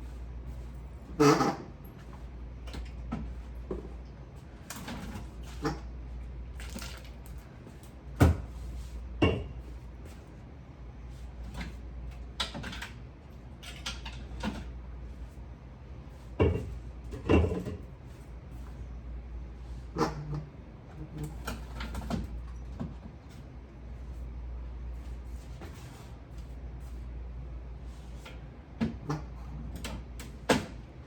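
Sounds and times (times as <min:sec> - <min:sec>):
steady low hum: 0:00.0 - 0:31.0
items knocking and clattering: 0:16.4 - 0:17.9.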